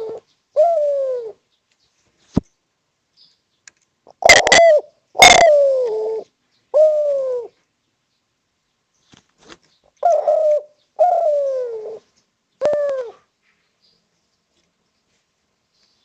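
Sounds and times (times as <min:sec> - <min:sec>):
dove cooing: 0:00.0 - 0:01.4, 0:04.1 - 0:07.7, 0:10.0 - 0:13.4.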